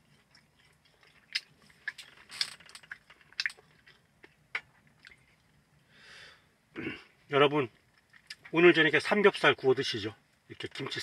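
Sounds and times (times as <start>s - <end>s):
person chewing food: 0.0s - 5.6s.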